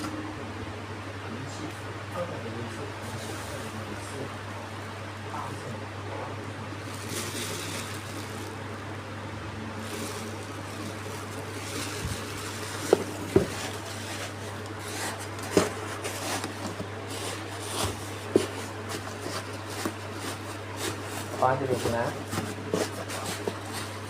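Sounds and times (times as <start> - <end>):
steady low hum: 0.0 - 24.0
handling rustling: 6.8 - 8.6, 9.8 - 24.0.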